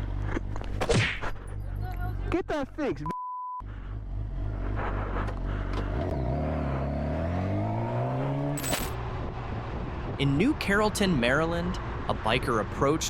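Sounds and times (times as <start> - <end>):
censor bleep: 3.0 - 3.6
motorcycle engine accelerating: 3.6 - 9.0.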